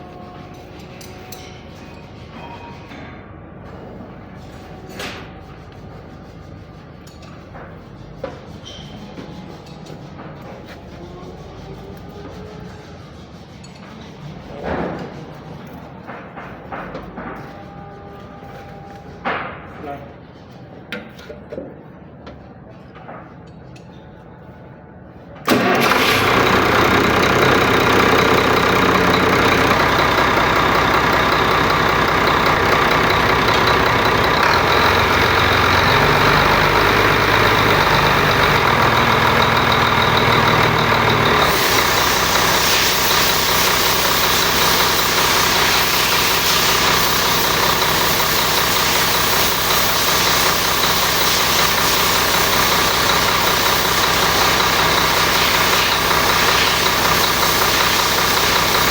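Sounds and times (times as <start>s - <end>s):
diesel engine starting and idling: 25.4s - 58.9s.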